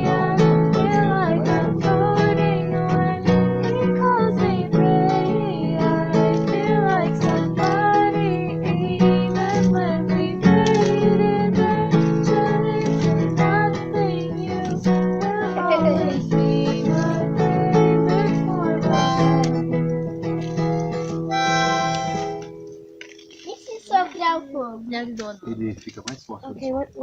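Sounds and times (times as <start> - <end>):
acoustic guitar strumming: 0.0 - 24.4
pitch-bending melody line: 18.9 - 19.6, 21.3 - 22.5.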